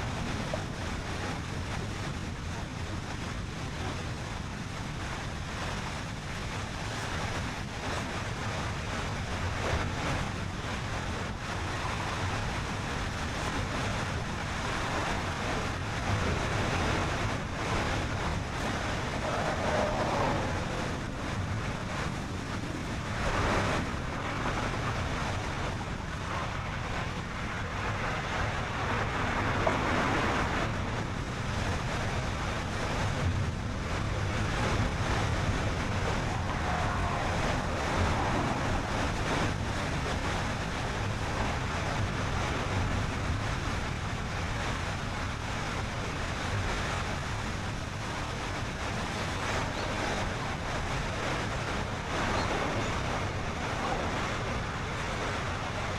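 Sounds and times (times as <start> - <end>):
low rumble: 3.8 - 42.6
wind rushing past: 11.4 - 31.2, 34.4 - 42.2.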